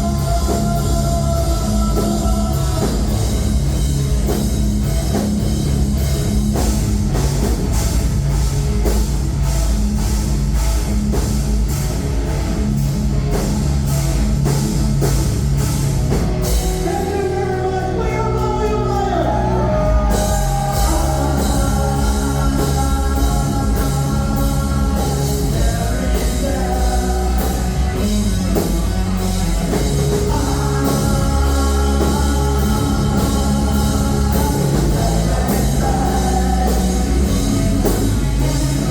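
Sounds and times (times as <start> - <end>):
live heavy rock band: 0.0 - 38.9.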